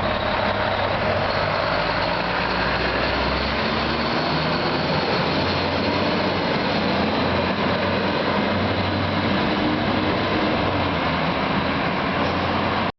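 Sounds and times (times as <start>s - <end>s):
fire truck engine drone: 0.0s - 12.9s
road noise: 0.0s - 12.9s.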